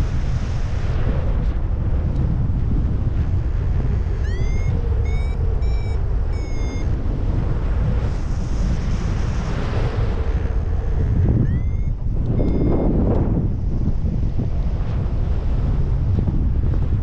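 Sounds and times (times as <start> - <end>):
wind buffeting microphone: 0.0 - 17.0
high-pitched variometer beeps: 3.9 - 7.0, 11.3 - 13.0.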